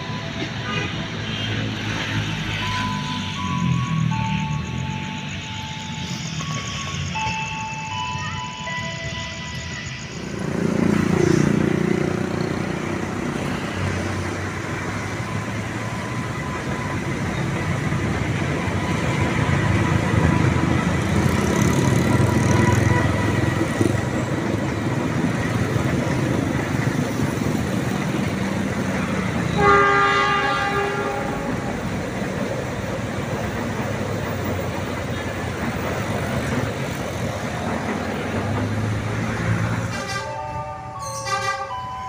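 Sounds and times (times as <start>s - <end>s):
train rumbling over bridge: 0.0s - 42.0s
locomotive horn blast: 29.4s - 31.7s, 39.8s - 41.9s.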